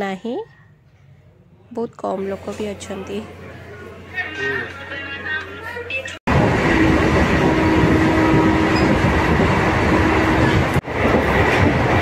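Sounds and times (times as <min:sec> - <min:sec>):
train carriage rumbling on rails: 0:06.3 - 0:12.0.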